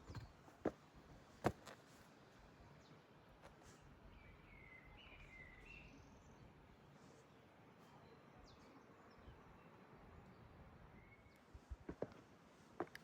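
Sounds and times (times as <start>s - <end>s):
faint bird chirps: 3.8s - 6.5s.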